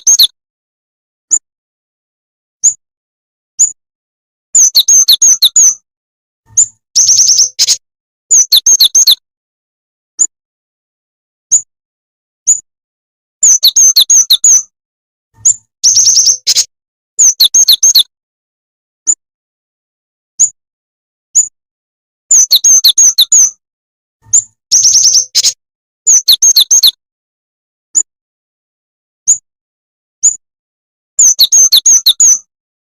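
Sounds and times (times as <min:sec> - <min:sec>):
high bird chirps: 0:00.0 - 0:00.4, 0:02.6 - 0:02.8, 0:03.6 - 0:03.8, 0:04.6 - 0:05.8, 0:06.5 - 0:09.2, 0:11.5 - 0:11.7, 0:12.4 - 0:12.7, 0:13.4 - 0:14.7, 0:15.4 - 0:18.1, 0:20.4 - 0:20.6, 0:21.3 - 0:21.6, 0:22.3 - 0:23.6, 0:24.2 - 0:27.0, 0:29.2 - 0:29.4, 0:30.2 - 0:30.4, 0:31.2 - 0:32.5
rapid bird chirps: 0:00.0 - 0:00.4, 0:02.6 - 0:02.8, 0:03.6 - 0:03.8, 0:04.6 - 0:05.8, 0:06.5 - 0:09.2, 0:11.5 - 0:11.7, 0:12.4 - 0:12.7, 0:13.4 - 0:14.7, 0:15.4 - 0:18.1, 0:20.4 - 0:20.6, 0:21.3 - 0:21.6, 0:22.3 - 0:23.6, 0:24.2 - 0:27.0, 0:29.2 - 0:29.5, 0:30.2 - 0:30.4, 0:31.2 - 0:32.5.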